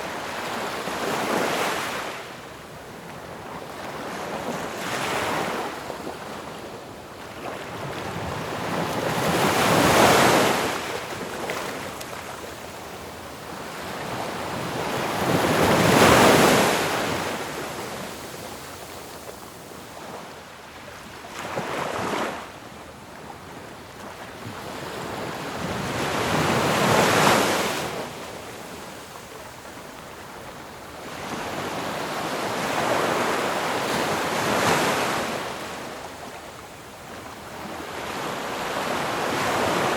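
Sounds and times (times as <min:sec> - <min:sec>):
ocean waves crashing on shore: 0:07.4 - 0:12.7, 0:13.4 - 0:20.6, 0:24.5 - 0:39.9.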